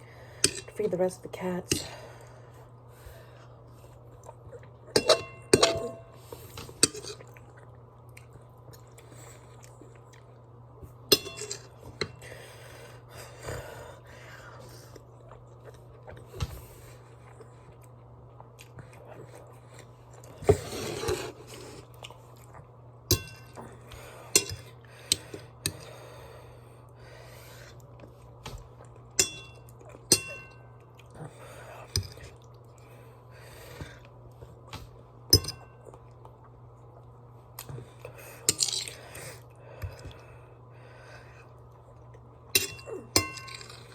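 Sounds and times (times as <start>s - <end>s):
steady low hum: 0.0s - 43.9s
utensil clinking on dish: 5.0s - 6.1s, 11.1s - 11.6s, 29.2s - 30.6s, 35.4s - 35.7s, 42.6s - 43.8s
quiet chewing: 6.2s - 10.5s, 14.4s - 22.8s, 30.8s - 34.7s.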